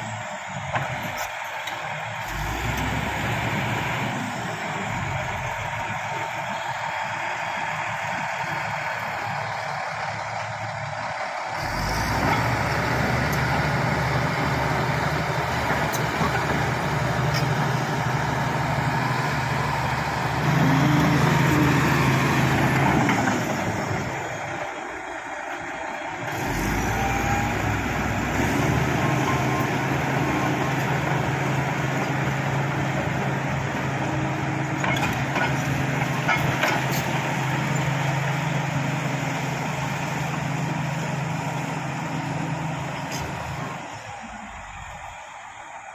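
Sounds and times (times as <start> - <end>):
bulldozer diesel engine under load: 0.0 - 45.9.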